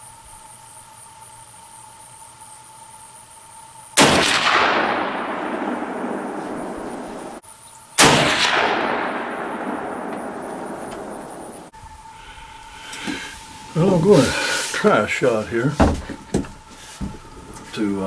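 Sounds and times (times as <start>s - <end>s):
rifle shots with echo: 4.0s - 7.4s, 8.0s - 11.7s.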